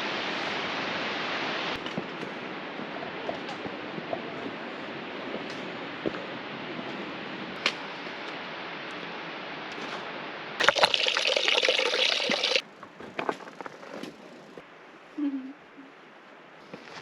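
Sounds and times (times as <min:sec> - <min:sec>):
running water rushing: 0:00.0 - 0:12.8.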